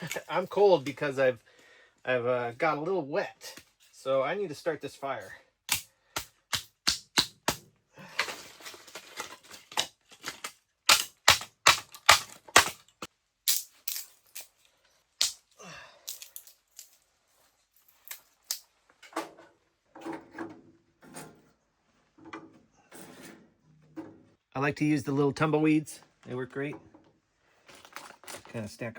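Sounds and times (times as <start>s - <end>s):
kindling snapping and clicking: 5.7s - 7.6s, 9.8s - 14.5s.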